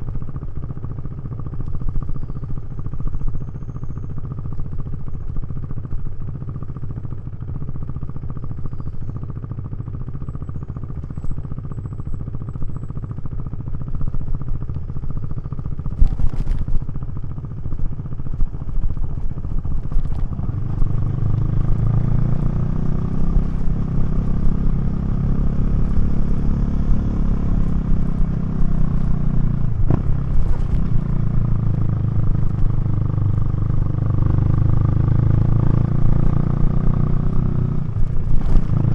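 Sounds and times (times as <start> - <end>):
motorcycle engine revving: 9.4 - 38.9.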